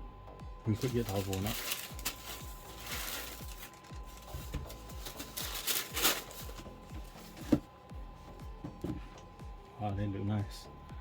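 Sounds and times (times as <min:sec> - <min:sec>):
background music with beat: 0:00.0 - 0:11.0
shoe box rustling: 0:00.7 - 0:07.7.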